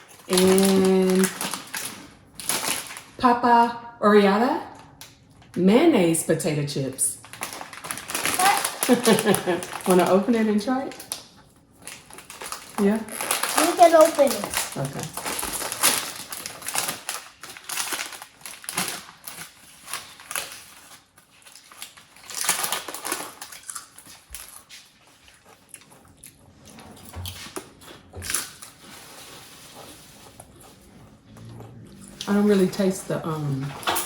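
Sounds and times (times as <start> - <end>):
plastic bag crinkling: 0.0 - 3.2, 7.2 - 25.0
chips crunched while chewing: 7.2 - 9.9, 10.9 - 26.4.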